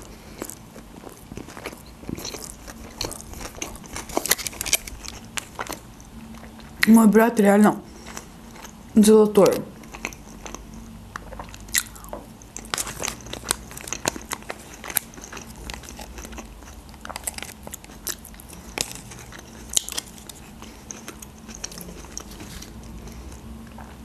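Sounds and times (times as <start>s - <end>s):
person chewing and biting: 0.0s - 6.8s, 7.9s - 8.9s, 9.8s - 24.0s
wet mouth clicks: 11.2s - 12.4s.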